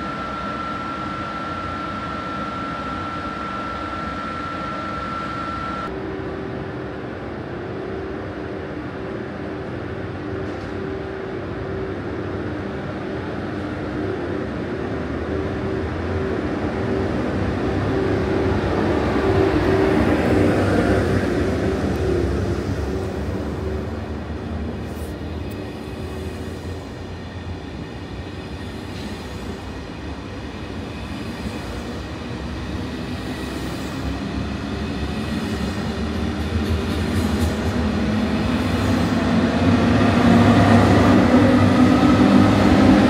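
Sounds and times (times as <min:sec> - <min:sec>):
steady high tone: 0:00.0 - 0:06.6
high-speed train humming past: 0:00.0 - 0:43.0.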